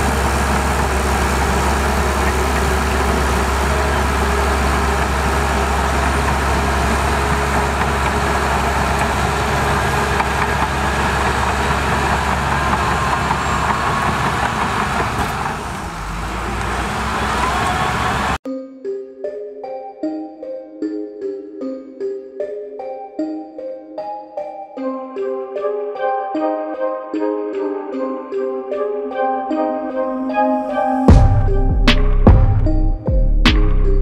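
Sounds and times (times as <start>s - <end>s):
diesel machinery rumbling: 0.0s - 18.4s, 31.1s - 34.0s.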